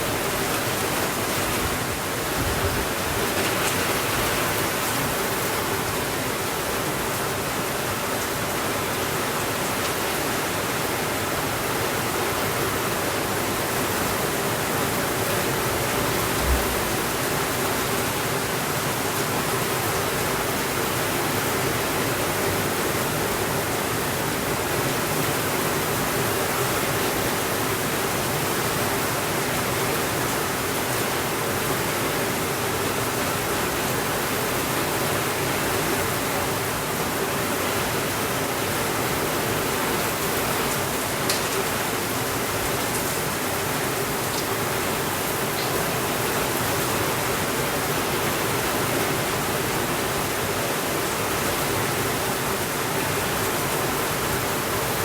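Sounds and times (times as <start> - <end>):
steady rainfall hiss: 0.0 - 55.0.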